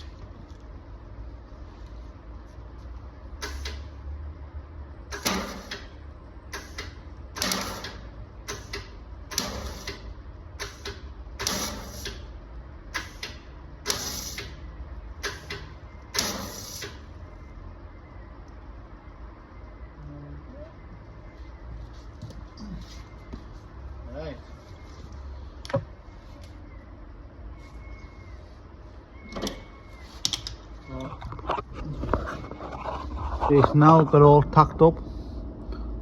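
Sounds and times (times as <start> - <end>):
welder crackling bursts: 13.9 - 14.5.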